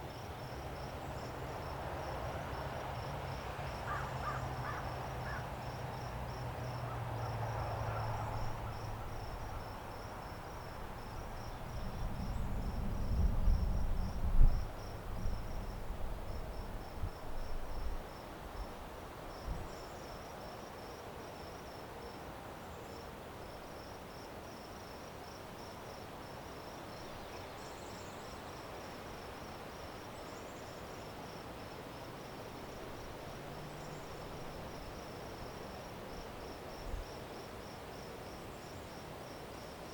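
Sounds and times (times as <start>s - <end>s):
insects trilling: 3.7s - 14.2s.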